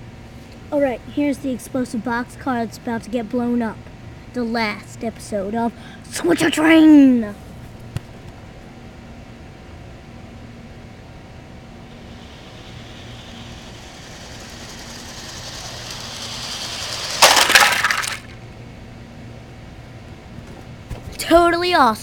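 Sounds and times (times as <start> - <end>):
model train running on track: 11.9 - 18.4
crash with breaking glass: 17.2 - 18.3.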